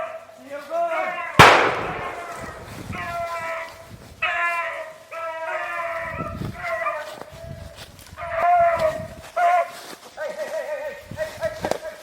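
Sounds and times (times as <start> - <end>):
dogs baying and howling: 4.2 - 7.2.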